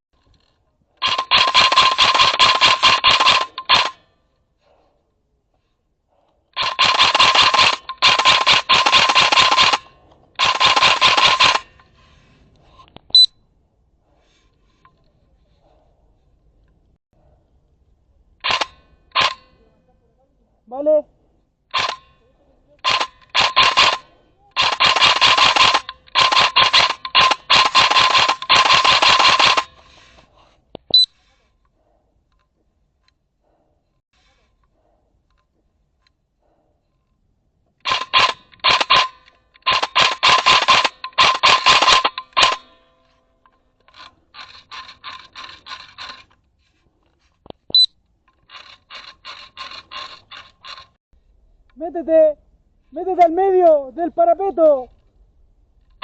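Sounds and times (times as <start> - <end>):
airsoft rifle automatic bursts: 1.0 - 4.0, 6.6 - 11.8, 18.4 - 19.5, 21.7 - 22.1, 22.8 - 29.9, 37.8 - 42.9
sharp click: 37.9 - 42.8.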